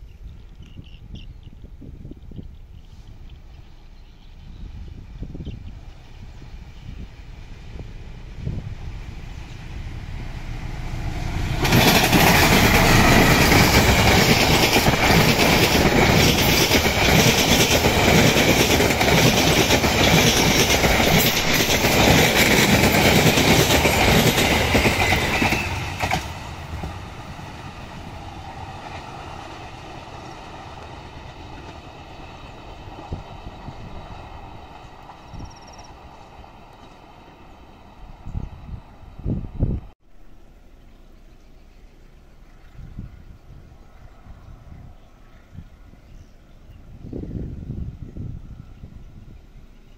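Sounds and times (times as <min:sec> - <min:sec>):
diesel train engine rumble: 0:00.0 - 0:49.9
train carriages rushing on rails: 0:04.6 - 0:40.0
clacking over rail joints: 0:11.5 - 0:27.0.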